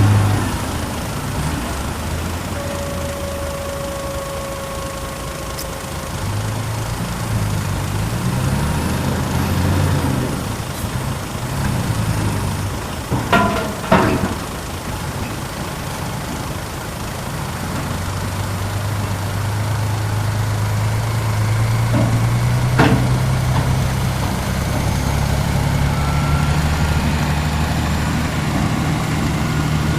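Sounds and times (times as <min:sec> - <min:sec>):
dump truck diesel engine running: 0:00.0 - 0:29.9
short clunks: 0:13.0 - 0:15.4, 0:21.1 - 0:25.0.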